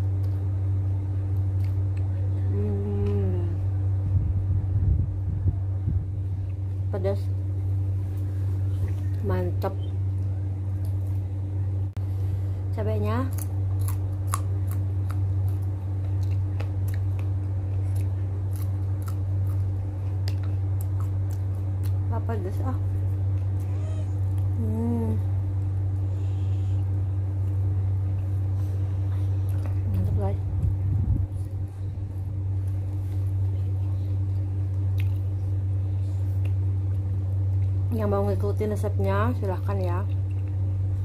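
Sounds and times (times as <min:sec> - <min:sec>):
crunchy chewing of chili pepper: 0:00.0 - 0:03.4, 0:13.2 - 0:37.9
steady low hum: 0:00.0 - 0:41.0.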